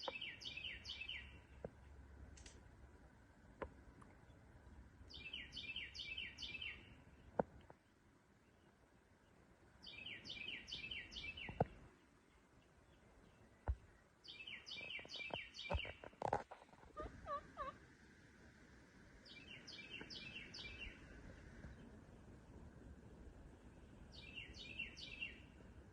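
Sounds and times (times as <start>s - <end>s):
lower softer bird calls: 0.0s - 1.7s, 5.0s - 7.4s, 8.4s - 16.1s, 16.8s - 17.9s, 19.2s - 22.1s, 23.5s - 25.6s
songbird singing high descending notes: 19.3s - 21.0s.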